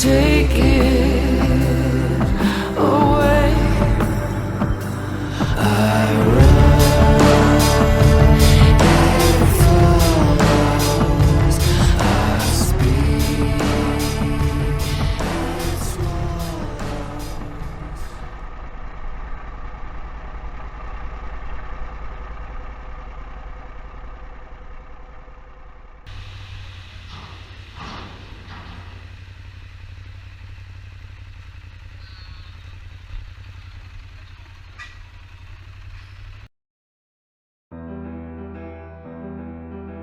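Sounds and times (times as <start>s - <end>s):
low hum: 0.0s - 36.5s
motorcycle engine running: 0.0s - 36.5s.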